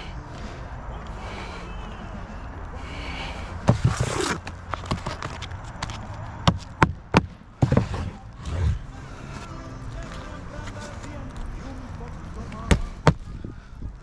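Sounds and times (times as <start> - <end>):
short scraping rustle: 3.7 - 6.1.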